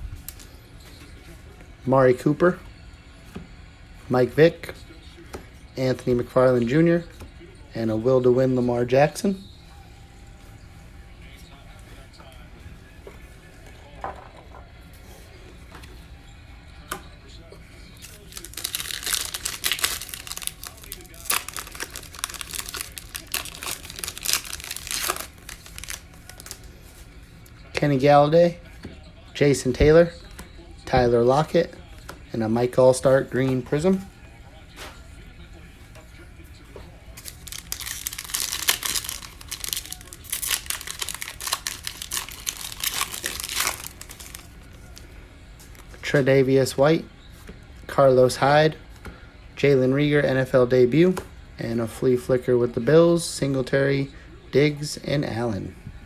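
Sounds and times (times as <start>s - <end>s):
card pack wrapper crinkling: 18.0s - 27.0s, 37.2s - 45.0s.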